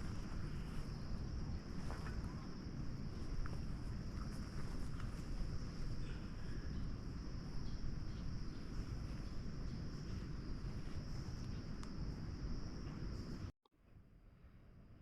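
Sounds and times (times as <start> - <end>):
insect chorus shrilling: 0.0 - 11.8.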